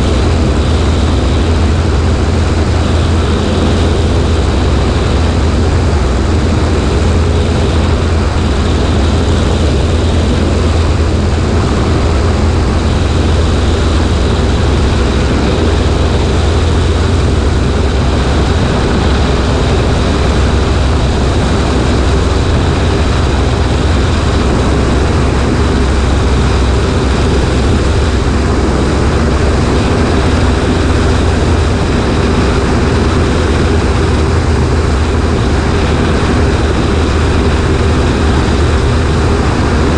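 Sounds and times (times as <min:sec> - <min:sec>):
aircraft engine and propeller drone: 0:00.0 - 0:39.9
wind rushing over microphone: 0:00.0 - 0:39.9.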